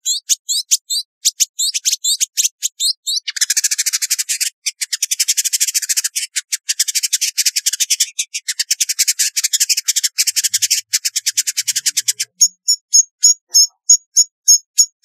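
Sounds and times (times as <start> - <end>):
bird chattering buzzy notes: 7.2 - 15.0.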